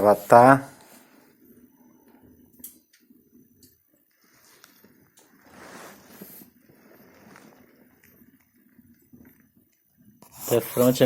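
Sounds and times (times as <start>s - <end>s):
soft fire hiss: 3.9s - 11.0s.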